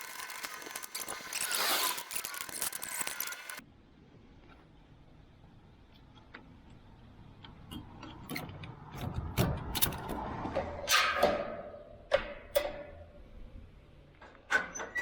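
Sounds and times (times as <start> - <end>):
metallic clicks and clinks: 0.0 - 3.6.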